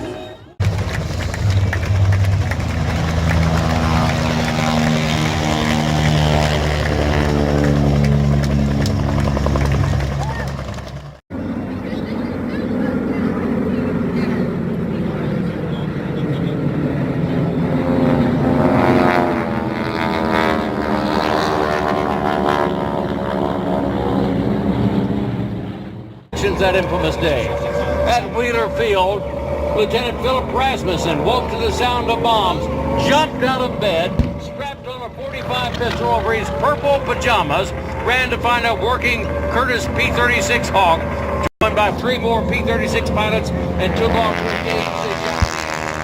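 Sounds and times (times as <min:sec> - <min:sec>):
propeller airplane engine drone: 0:00.0 - 0:46.0.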